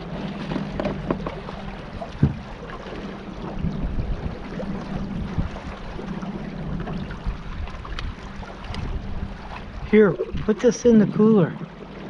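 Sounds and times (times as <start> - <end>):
water noise: 0.0 - 12.0
wind buffeting microphone: 0.0 - 12.0.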